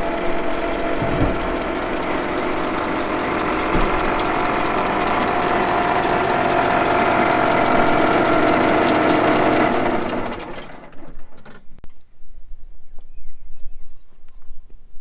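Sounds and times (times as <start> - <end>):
engine running with clatter: 0.0 - 11.7.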